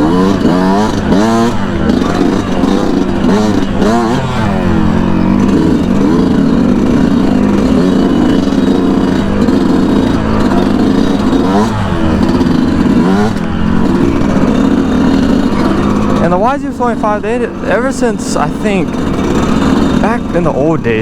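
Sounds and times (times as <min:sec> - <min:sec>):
two-stroke motorcycle engine revving: 0:00.0 - 0:21.0.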